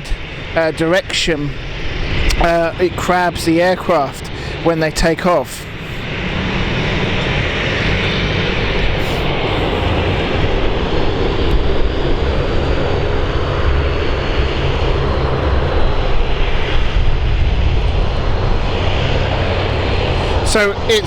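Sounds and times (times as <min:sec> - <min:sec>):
aircraft engines running: 0:00.0 - 0:21.0
wind rumbling on microphone: 0:05.6 - 0:21.0.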